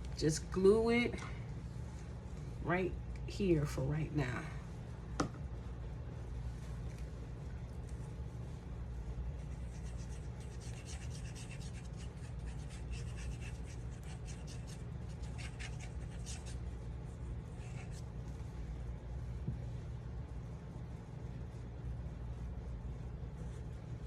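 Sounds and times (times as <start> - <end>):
steady low hum: 0.0 - 24.0
paper being rubbed: 9.4 - 16.6.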